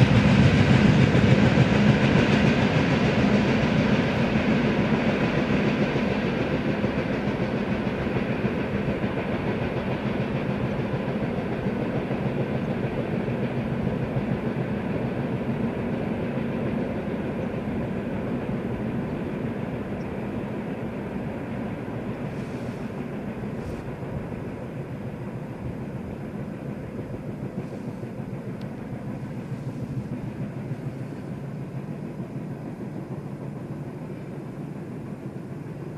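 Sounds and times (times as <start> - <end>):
freight train wheels rumbling on rails: 0.0 - 35.9.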